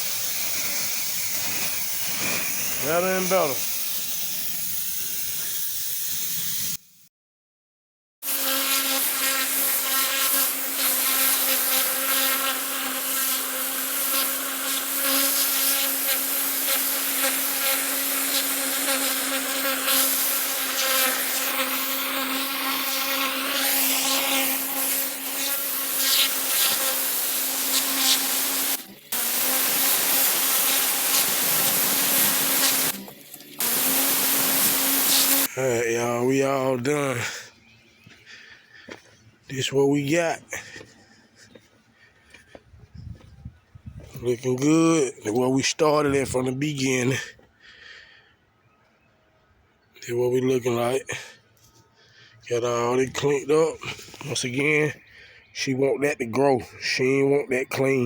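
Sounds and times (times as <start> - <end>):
pressure washer humming: 0.0 - 4.8, 8.6 - 35.7
water jet spraying: 0.0 - 6.8, 9.0 - 35.5.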